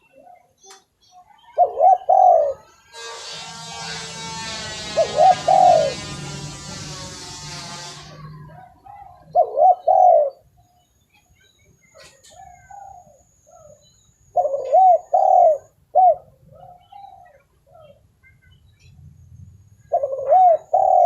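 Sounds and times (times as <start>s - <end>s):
dove cooing: 1.5s - 2.8s, 5.0s - 6.2s, 8.4s - 10.5s, 12.0s - 18.0s, 19.9s - 21.0s.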